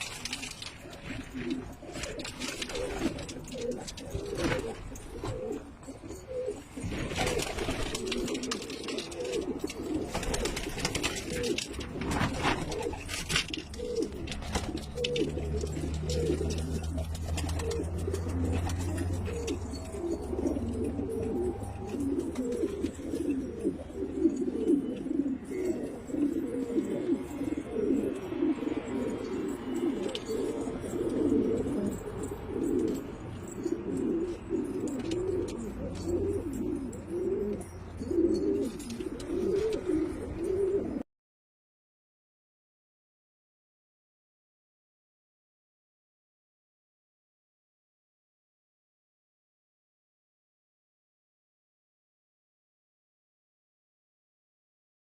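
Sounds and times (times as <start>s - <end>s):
pigeons cooing: 0.0s - 41.0s.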